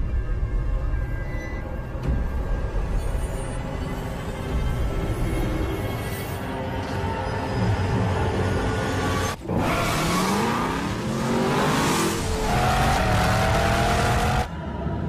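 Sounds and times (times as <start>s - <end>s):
car engine accelerating in tunnel: 8.8s - 15.0s.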